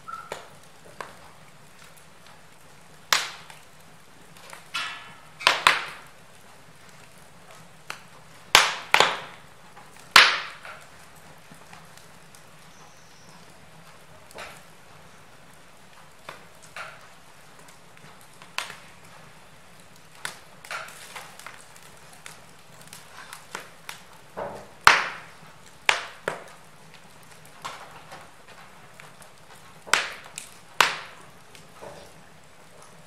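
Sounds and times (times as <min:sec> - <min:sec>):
faint fire hiss: 0:00.0 - 0:33.0
logs crackling and popping: 0:00.0 - 0:33.0.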